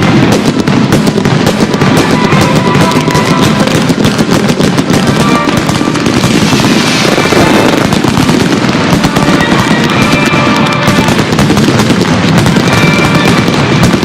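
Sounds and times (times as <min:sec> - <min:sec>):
fireworks crackling and popping: 0:00.0 - 0:14.0
hissing crackle: 0:00.0 - 0:14.0
loud music: 0:04.8 - 0:11.4.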